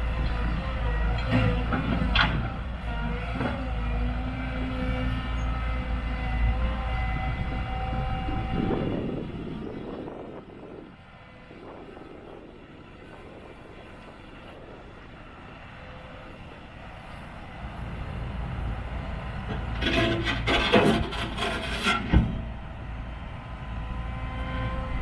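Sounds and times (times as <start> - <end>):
excavator engine and hydraulics whining: 0.0 - 25.0.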